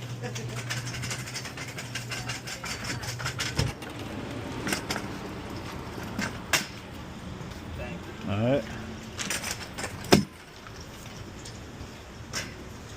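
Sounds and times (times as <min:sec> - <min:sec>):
engine idling with clicking rattle: 0:00.0 - 0:07.6, 0:08.2 - 0:12.9.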